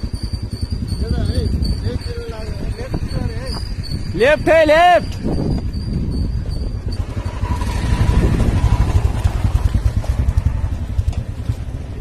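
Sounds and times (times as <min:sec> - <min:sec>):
motorcycle engine pulsing: 0:00.0 - 0:12.0.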